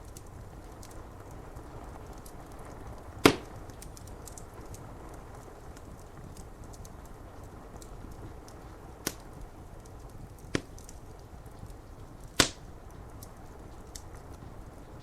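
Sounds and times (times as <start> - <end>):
wood fire crackling: 0.0 - 15.0
loud sharp pop: 3.2 - 3.5, 12.4 - 12.6.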